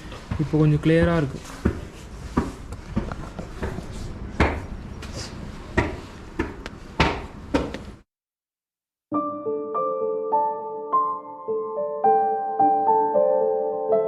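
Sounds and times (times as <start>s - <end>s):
sharp knocks and clicks: 5.8s - 7.9s.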